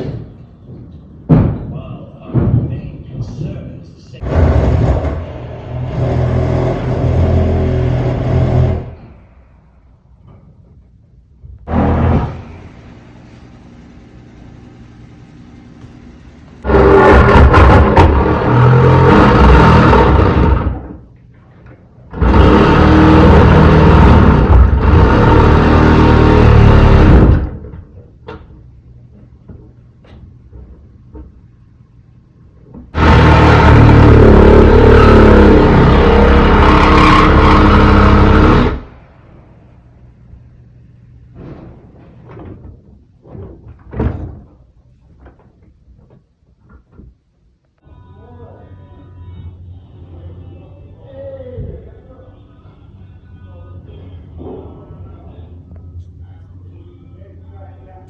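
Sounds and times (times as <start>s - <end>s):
muffled construction knocks: 0.0s - 2.9s
construction machinery din: 0.0s - 31.4s, 32.7s - 47.0s.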